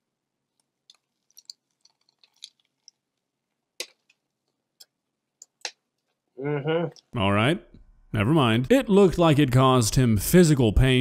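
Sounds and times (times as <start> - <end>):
man chewing crunchy food: 0.5 - 5.7
wet smack: 3.8 - 4.1.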